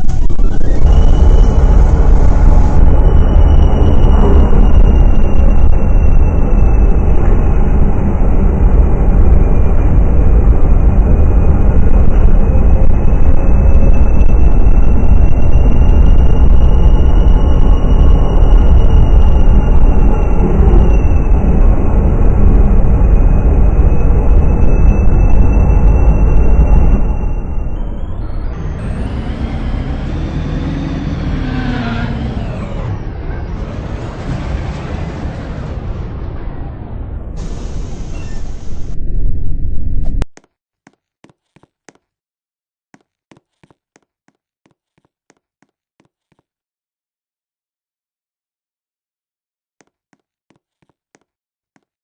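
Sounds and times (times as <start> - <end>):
roller coaster rumbling on track: 0.0 - 40.1
high-pitched whine: 0.0 - 40.2.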